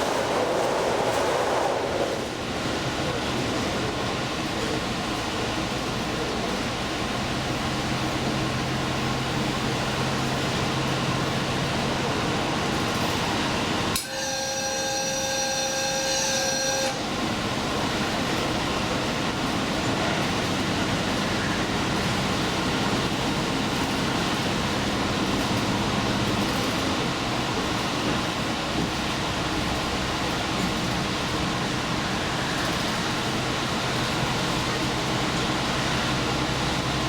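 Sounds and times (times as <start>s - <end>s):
train wheels rumbling on rail: 0.0s - 37.0s
held horn tones: 14.0s - 17.0s.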